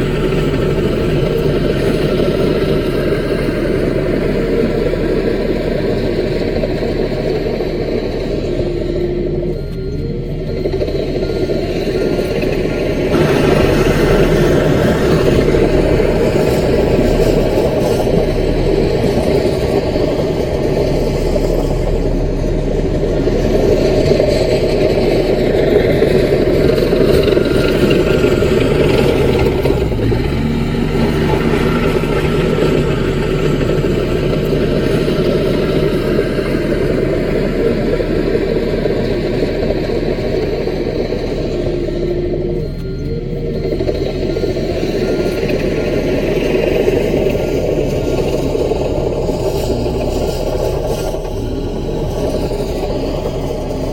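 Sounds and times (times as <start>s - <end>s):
bulldozer diesel engine running: 0.0s - 53.9s.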